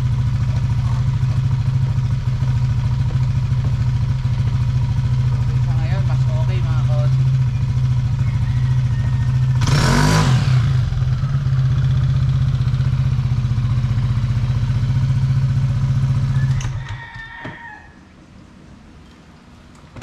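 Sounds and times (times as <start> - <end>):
scooter engine idling: 0.0 - 16.6
engine revving: 8.9 - 16.3.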